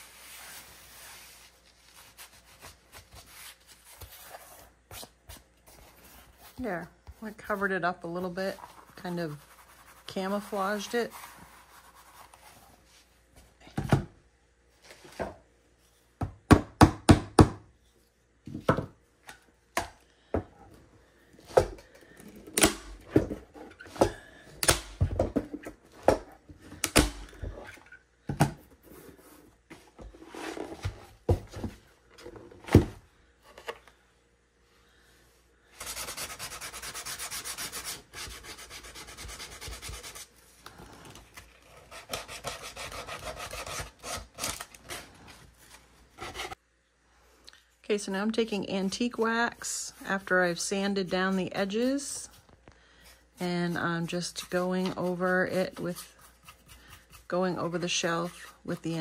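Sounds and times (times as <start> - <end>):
sandpaper rubbing wood: 35.8 - 40.3.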